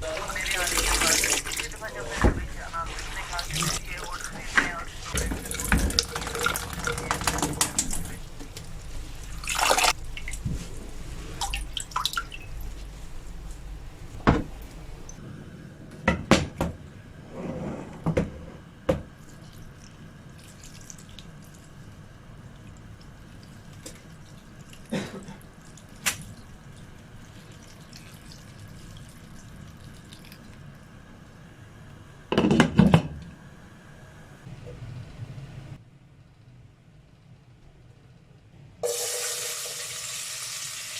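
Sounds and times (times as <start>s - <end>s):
tap water running into sink: 0.0s - 4.4s, 5.1s - 15.2s
water dripping: 0.0s - 15.2s.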